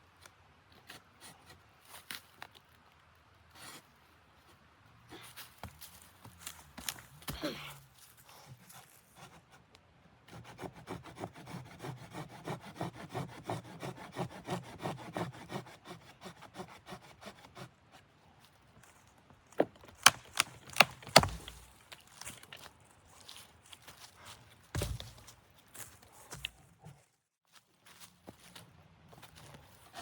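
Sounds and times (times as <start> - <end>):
hand saw cutting wood: 10.3 - 18.1, 20.0 - 21.8.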